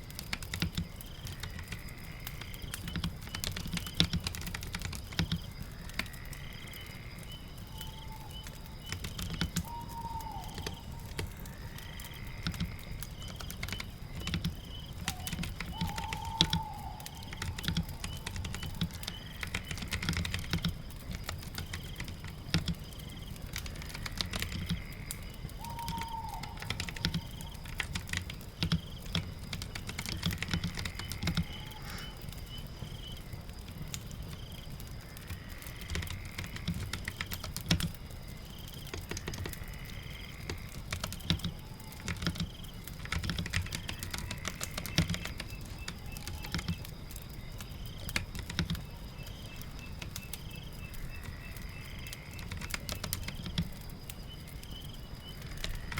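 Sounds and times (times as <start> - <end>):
rain pattering: 0.0 - 55.9
computer keyboard typing: 0.2 - 1.7, 2.3 - 6.1, 7.8 - 9.7, 12.4 - 22.9, 23.5 - 31.6, 35.9 - 38.0, 40.5 - 46.9, 47.7 - 48.9, 52.3 - 53.8.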